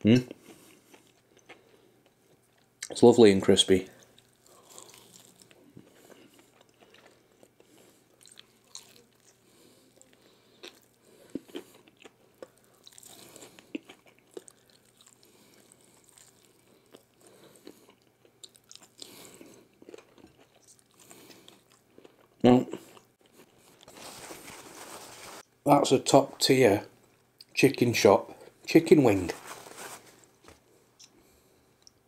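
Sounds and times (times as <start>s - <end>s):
chewing crispy chicken crunches: 3.9s - 25.2s.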